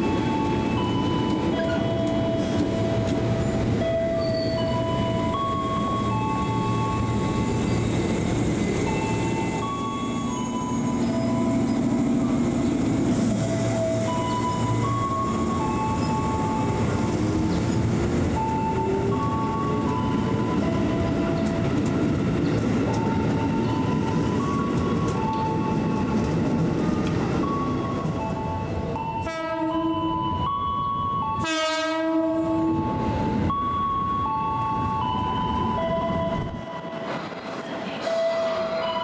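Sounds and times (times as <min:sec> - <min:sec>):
train wheels and motors rumbling: 0:00.0 - 0:29.4
train horn blasts: 0:29.1 - 0:30.1, 0:31.4 - 0:32.8.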